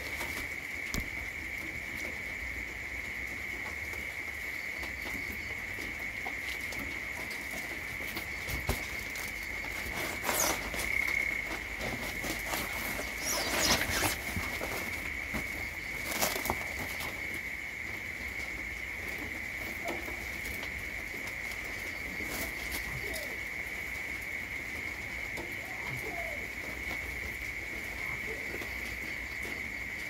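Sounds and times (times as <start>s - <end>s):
insects droning: 0.0s - 30.0s
pattering and rustling: 7.2s - 17.4s.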